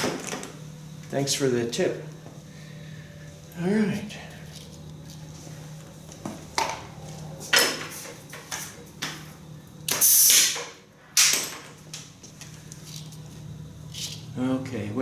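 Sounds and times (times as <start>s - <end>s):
impact wrench bursts: 9.9s - 11.4s.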